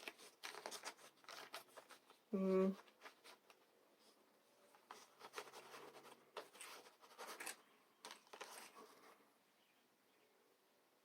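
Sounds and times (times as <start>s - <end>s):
faint rustling and scraping: 0.0s - 9.4s.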